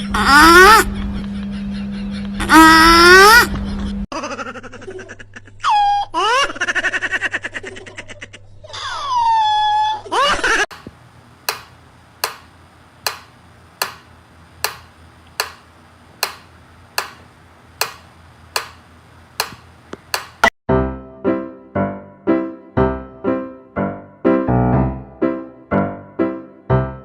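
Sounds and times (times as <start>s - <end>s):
high vocal cries: 0.0s - 1.0s, 2.4s - 3.5s
sharp clicks: 10.7s - 20.5s.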